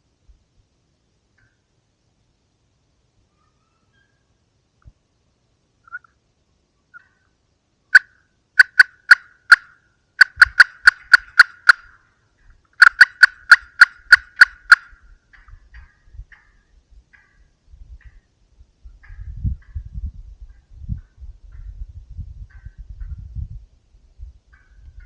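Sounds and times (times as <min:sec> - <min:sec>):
turkey yelping: 0:03.3 - 0:04.3, 0:08.0 - 0:12.0, 0:12.8 - 0:16.5.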